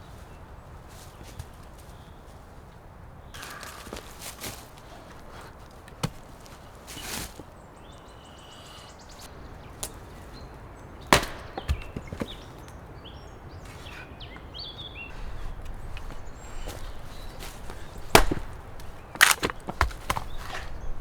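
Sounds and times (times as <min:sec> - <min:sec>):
sharp wooden knocks: 0:11.1 - 0:12.4, 0:17.7 - 0:20.7.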